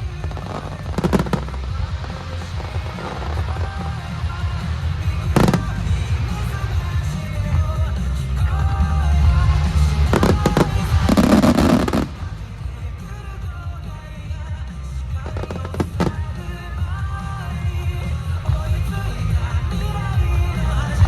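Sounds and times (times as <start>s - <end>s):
fireworks bursting: 0.0s - 21.0s
pop song: 0.0s - 21.0s.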